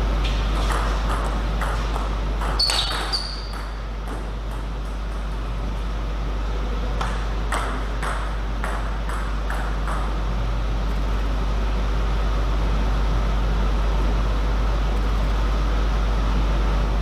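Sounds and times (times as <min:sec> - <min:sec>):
steady low hum: 0:00.0 - 0:17.0
table tennis ball clicking: 0:07.0 - 0:10.2.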